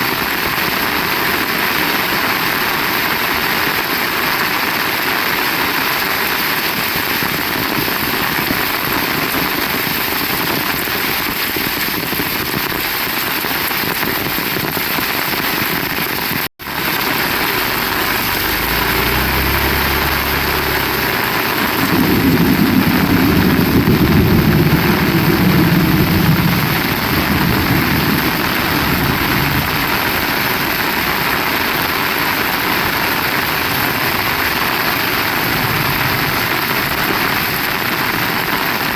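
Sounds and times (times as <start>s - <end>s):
heavy rain falling: 0.0s - 38.9s
low engine rumble: 16.6s - 37.0s.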